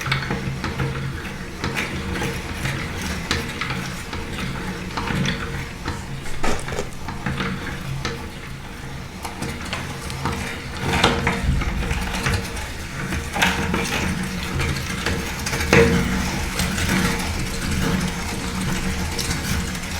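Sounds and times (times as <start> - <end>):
crunchy food crackling in grinder: 5.7 - 7.7.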